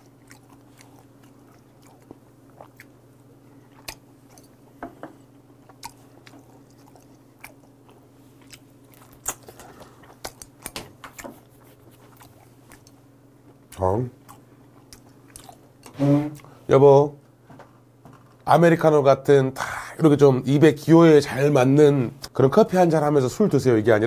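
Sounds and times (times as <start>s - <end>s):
man chewing: 0.0s - 16.6s
steady low hum: 0.0s - 24.0s
wet mouth sounds: 3.7s - 4.6s, 5.7s - 13.0s.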